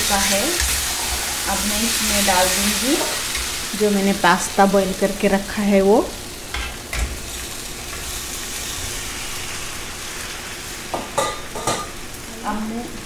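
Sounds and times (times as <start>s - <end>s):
sauce sizzling in a pan: 0.0s - 13.0s.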